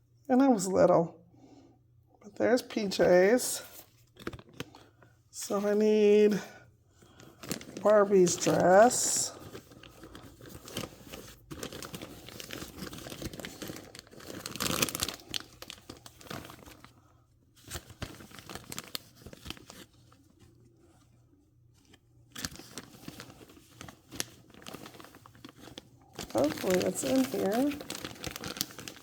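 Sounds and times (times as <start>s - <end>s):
plastic bag crinkling: 3.4s - 5.7s, 7.0s - 17.0s, 17.6s - 20.2s, 22.3s - 29.0s.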